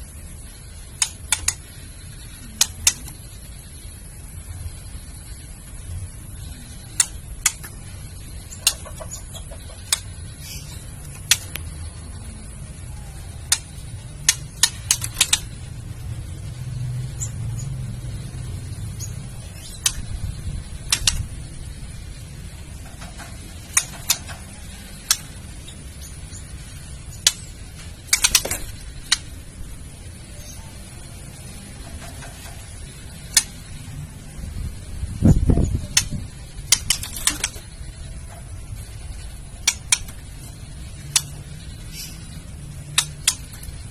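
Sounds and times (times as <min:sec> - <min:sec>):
low steady hum: 0:00.0 - 0:43.9
bird clicking call: 0:08.6 - 0:10.2, 0:13.4 - 0:15.6, 0:20.8 - 0:21.2, 0:39.6 - 0:40.2.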